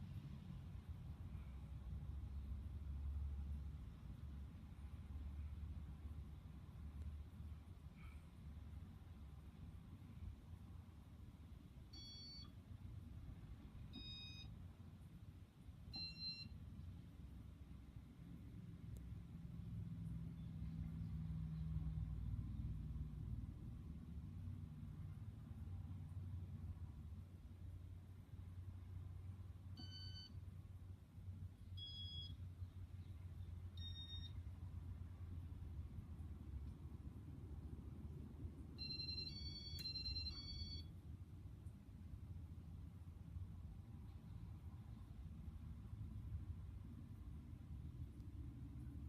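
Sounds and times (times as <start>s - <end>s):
faint low hum: 0.0s - 49.0s
short electronic beeps: 11.9s - 12.6s, 13.9s - 14.5s, 15.9s - 16.6s, 29.8s - 30.4s, 31.8s - 32.4s, 33.8s - 34.4s, 38.8s - 40.9s.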